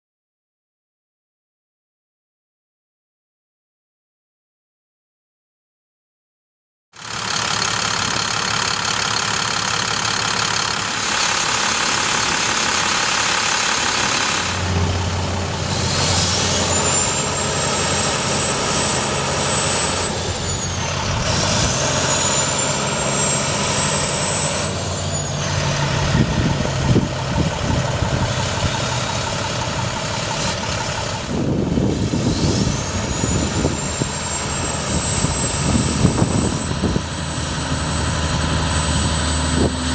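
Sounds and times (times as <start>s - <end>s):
diesel truck engine running: 7.0s - 39.9s
high whine rising and falling: 10.4s - 39.9s.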